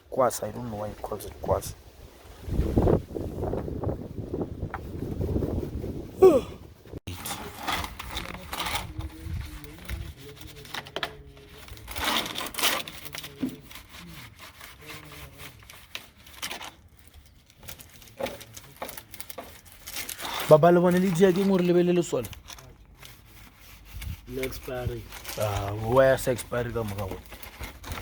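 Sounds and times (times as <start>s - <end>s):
stiff brush scrubbing: 2.5s - 6.2s, 7.0s - 28.0s.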